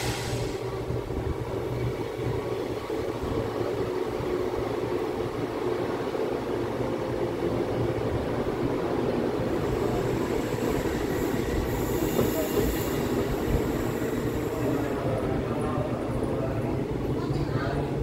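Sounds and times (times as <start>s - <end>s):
train rumbling on rails: 0.0s - 18.0s.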